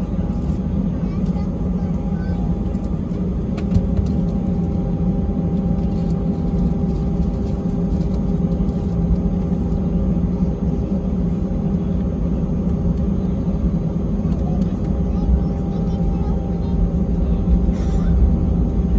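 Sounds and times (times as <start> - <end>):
jet engine rumble in cabin: 0.0 - 18.9.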